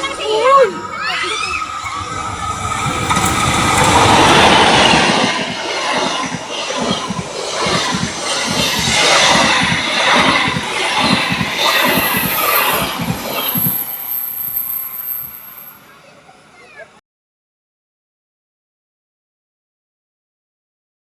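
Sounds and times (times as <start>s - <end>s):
wheels clattering over rail joints: 0.0s - 16.0s
train passing with rolling roar: 0.0s - 17.0s.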